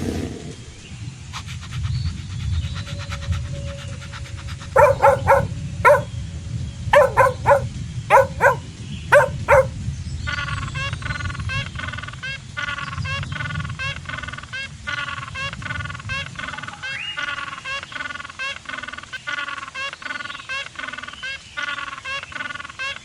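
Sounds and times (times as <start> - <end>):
birds calling: 4.8 - 6.1, 7.0 - 9.7.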